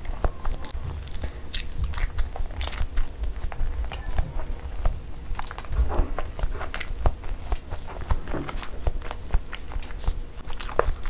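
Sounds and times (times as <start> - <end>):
low rumble: 0.0 - 7.2
mouth chewing clicks and smacks: 0.2 - 11.0.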